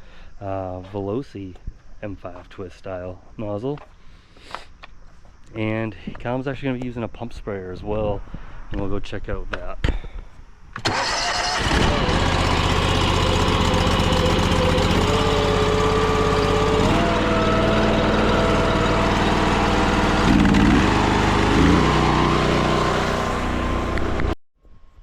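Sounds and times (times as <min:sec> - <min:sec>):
pressure washer engine running: 0:11.0 - 0:24.3.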